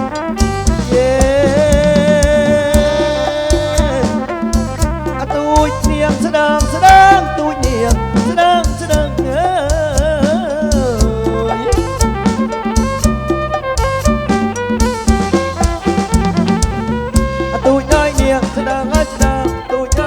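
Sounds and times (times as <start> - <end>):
bass: 0.0 - 20.0
steady drum beat: 0.0 - 20.0
wavering lead melody: 0.0 - 20.0.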